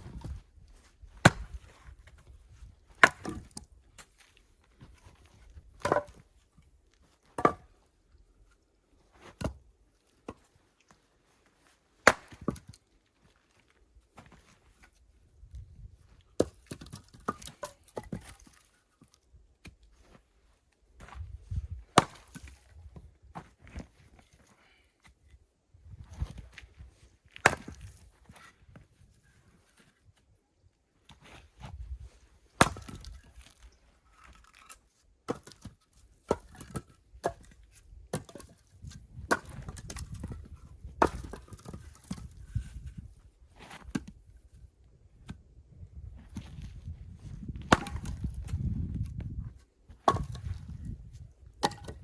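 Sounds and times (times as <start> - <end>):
wood splitting: 1.2 - 1.7, 3.0 - 3.6, 5.8 - 6.2, 12.0 - 12.8, 22.0 - 22.6, 27.4 - 28.0, 32.6 - 33.4, 34.1 - 42.4, 47.6 - 48.6, 50.0 - 51.0, 51.6 - 52.0
axe chopping firewood: 1.2 - 2.2, 2.9 - 4.2, 5.8 - 6.3, 7.4 - 7.8, 9.2 - 9.6, 12.0 - 12.8, 16.4 - 18.6, 21.9 - 22.8, 27.4 - 28.5, 32.6 - 33.5, 34.4 - 43.0, 47.5 - 49.2, 49.9 - 51.0, 51.6 - 52.0.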